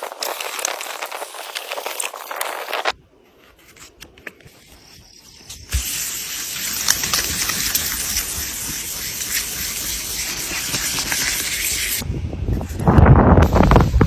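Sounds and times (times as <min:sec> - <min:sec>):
water spraying: 0:05.4 - 0:12.0.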